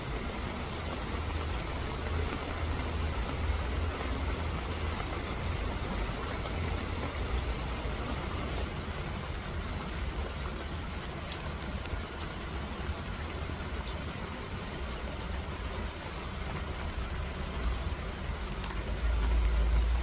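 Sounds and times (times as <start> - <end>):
steady low rumble: 0.0 - 13.0
raindrop ticks: 0.0 - 20.0
steady rain hiss: 0.0 - 20.0.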